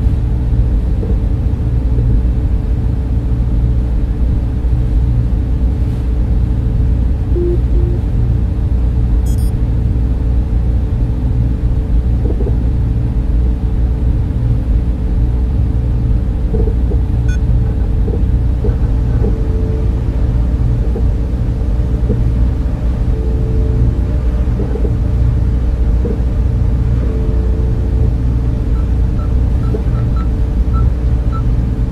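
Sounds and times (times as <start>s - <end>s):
constant hum: 0.0s - 31.9s
cooling fans whirring: 0.0s - 31.9s
low rumble: 0.0s - 31.9s.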